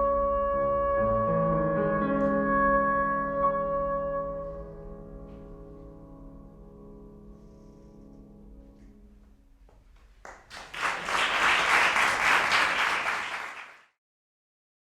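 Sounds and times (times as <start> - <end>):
trumpet and piano chord: 0.0 - 5.8
audience applause: 10.2 - 14.0.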